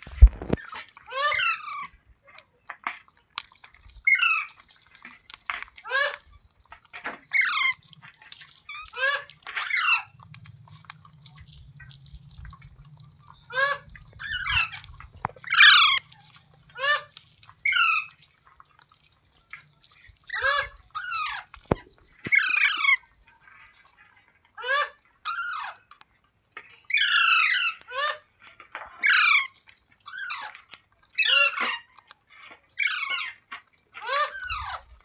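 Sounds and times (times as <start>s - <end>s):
parrot squawking: 1.1s - 1.9s, 5.8s - 6.2s, 8.8s - 10.2s, 13.5s - 14.8s, 15.4s - 16.1s, 16.7s - 18.1s, 20.3s - 21.5s, 22.3s - 23.0s, 24.6s - 25.8s, 26.9s - 28.3s, 29.0s - 29.5s, 31.2s - 31.9s, 34.0s - 34.8s.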